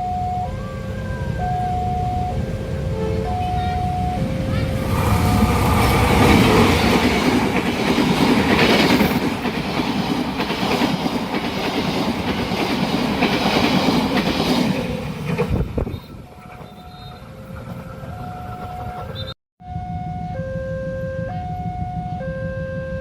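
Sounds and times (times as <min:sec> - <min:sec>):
train passing: 0:00.0 - 0:23.0
wheels clacking over rail joints: 0:03.3 - 0:19.3.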